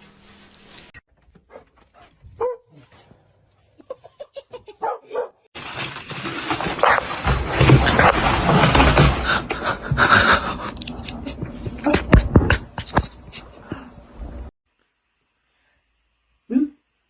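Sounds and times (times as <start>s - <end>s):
dog barking and yipping: 1.5s - 2.8s, 4.8s - 5.5s.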